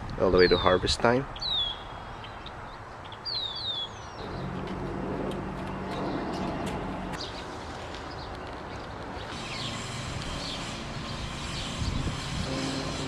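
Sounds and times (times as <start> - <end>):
high bird chirps: 1.4 - 4.5, 9.2 - 12.1
vehicle engine hum: 4.0 - 13.0.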